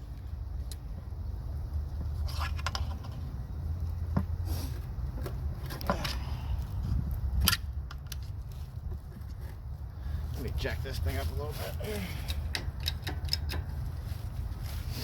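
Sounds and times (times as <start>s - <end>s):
low steady rumble: 0.0s - 15.0s
sharp metal knocks: 12.3s - 13.8s.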